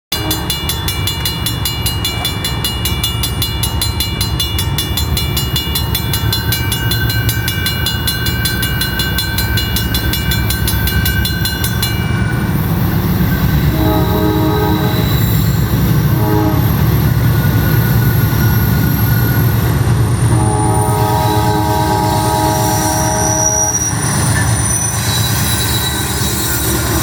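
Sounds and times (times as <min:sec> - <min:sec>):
locomotive air horn: 0:00.1 - 0:00.5, 0:13.5 - 0:17.1, 0:20.2 - 0:24.0
bell ringing rapidly: 0:00.1 - 0:12.5
diesel locomotives rumbling: 0:00.1 - 0:27.0.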